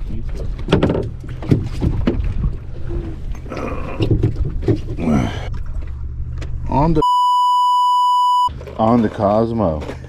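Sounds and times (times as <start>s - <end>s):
sharp knocks and clatter: 0.6s - 2.4s.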